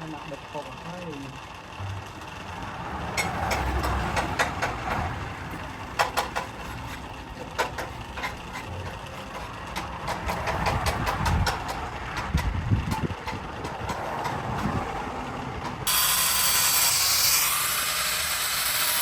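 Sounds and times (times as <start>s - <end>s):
motor running steadily: 0.0s - 19.0s
sharp clicks and knocks: 3.1s - 14.8s.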